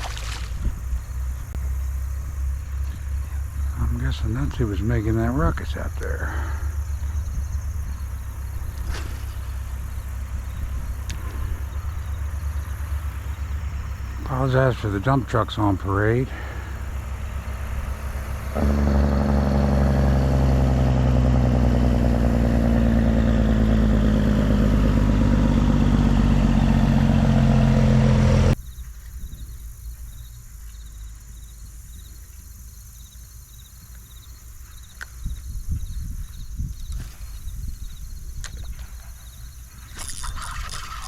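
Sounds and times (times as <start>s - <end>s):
insects chirping: 0.0s - 26.1s, 28.6s - 41.0s
truck engine running: 0.0s - 28.6s.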